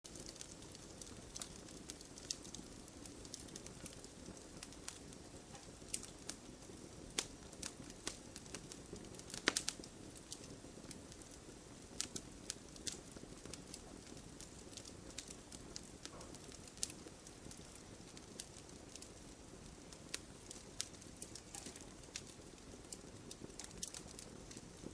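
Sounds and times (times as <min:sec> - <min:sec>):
low hiss of flames: 0:00.1 - 0:24.9
wood fire crackling and popping: 0:00.1 - 0:24.9.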